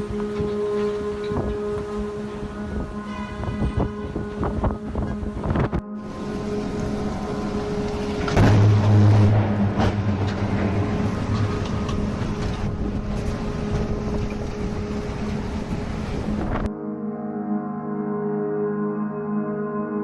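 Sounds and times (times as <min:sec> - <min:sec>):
strong wind gusts on microphone: 0:01.2 - 0:16.7.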